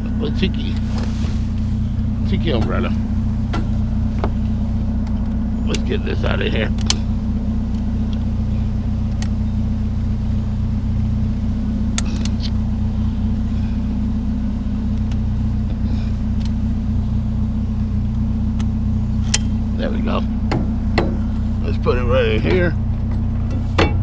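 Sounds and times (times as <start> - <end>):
vehicle engine idling: 0.0 - 24.0
sharp clicks and knocks: 3.5 - 5.9, 20.4 - 21.4.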